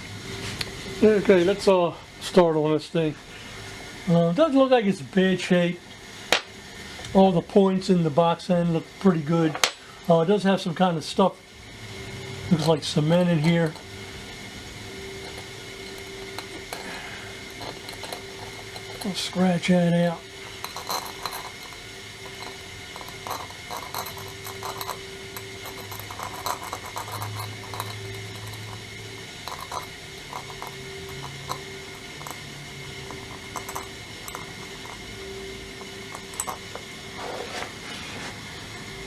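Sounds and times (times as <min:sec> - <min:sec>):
steady hum: 0:00.0 - 0:39.0
metallic scratches on wrench: 0:17.5 - 0:35.1, 0:35.8 - 0:37.5.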